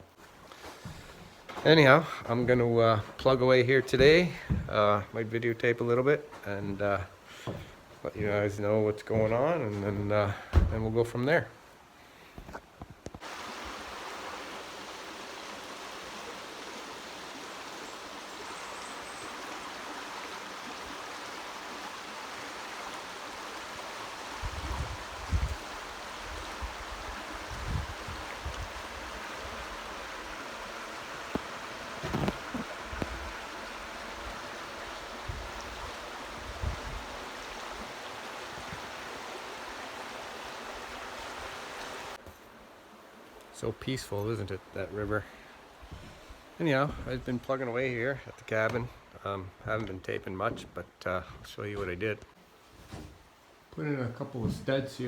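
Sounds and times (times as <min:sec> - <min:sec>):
river rushing: 0:13.2 - 0:43.6
low bumps: 0:30.6 - 0:37.8.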